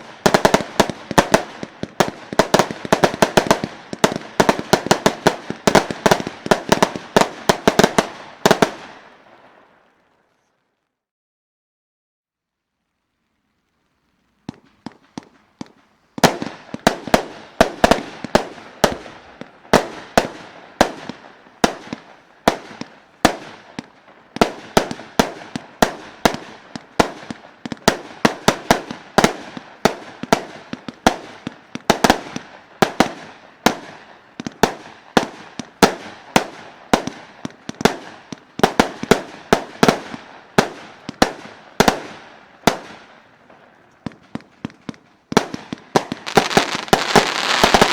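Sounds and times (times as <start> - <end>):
firework bangs: 0.0 - 9.7, 14.4 - 47.9
faint fuse crackling: 12.4 - 19.7.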